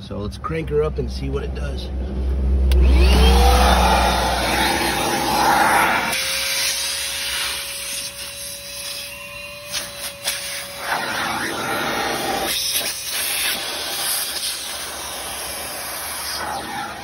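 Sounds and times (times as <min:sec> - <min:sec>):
shop vac motor whine: 0:02.6 - 0:17.0
air rushing through nozzle: 0:02.7 - 0:09.1.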